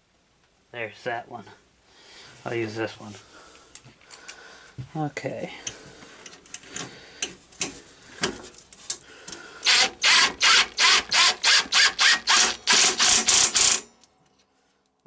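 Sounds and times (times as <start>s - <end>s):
screw grinding into sheet metal: 9.6s - 13.9s.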